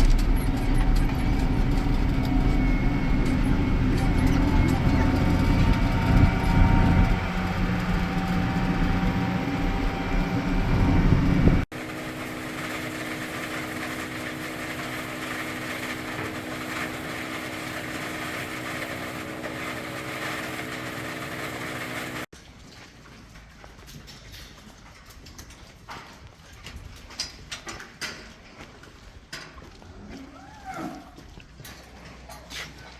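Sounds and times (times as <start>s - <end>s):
farm machinery engine rumbling: 0.0s - 22.3s
machine hum with fixed tones: 0.0s - 22.3s.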